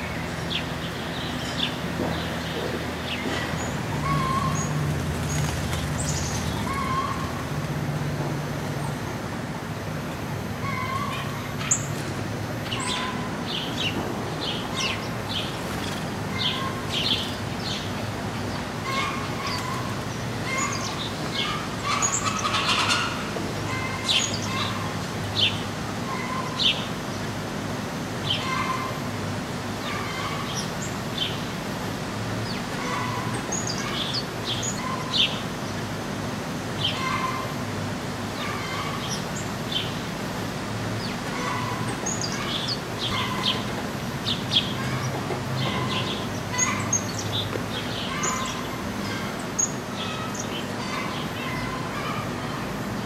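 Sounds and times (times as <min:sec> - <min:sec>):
small birds chirping: 0:00.0 - 0:07.5, 0:10.6 - 0:27.4, 0:32.4 - 0:35.9, 0:38.3 - 0:40.2, 0:41.0 - 0:53.0.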